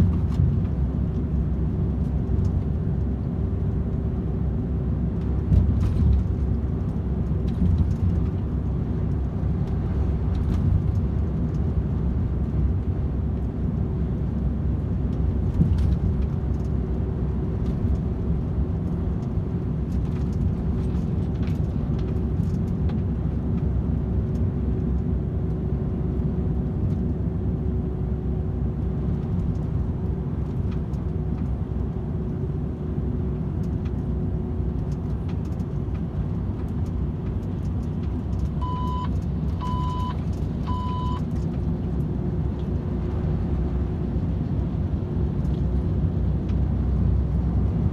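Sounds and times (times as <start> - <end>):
truck engine and road drone: 0.0 - 47.9.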